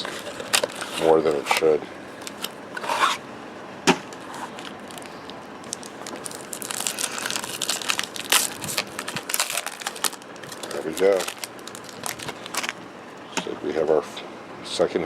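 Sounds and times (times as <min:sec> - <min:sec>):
wrapper crinkling and tearing: 0:00.0 - 0:02.6, 0:04.1 - 0:12.8
small crackles: 0:04.1 - 0:13.3.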